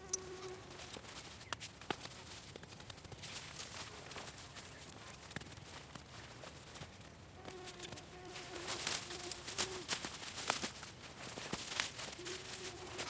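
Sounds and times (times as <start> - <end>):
insect buzzing: 0.0 - 0.8, 7.4 - 10.0, 12.2 - 13.0.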